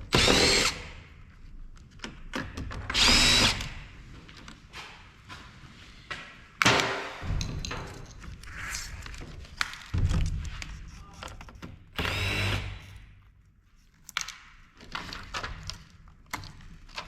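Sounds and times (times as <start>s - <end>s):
cordless drill whining: 0.1s - 0.9s, 2.9s - 3.8s, 12.0s - 12.9s.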